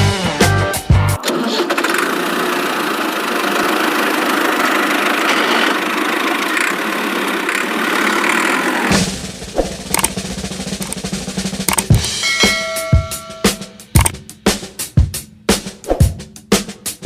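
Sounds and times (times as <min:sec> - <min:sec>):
helicopter rotor whirring: 0:02.2 - 0:12.2.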